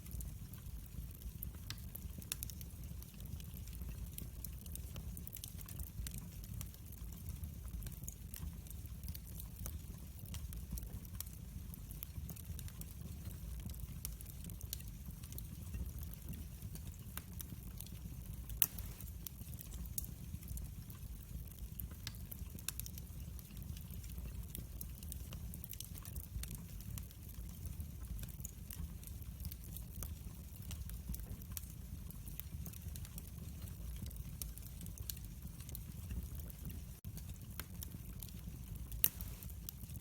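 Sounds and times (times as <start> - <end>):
fireplace fire crackling: 0.0 - 40.0.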